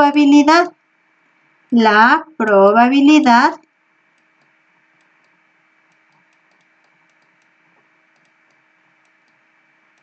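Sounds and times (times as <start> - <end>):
low steady hum: 0.0 - 10.0
faint irregular clicks: 3.6 - 10.0.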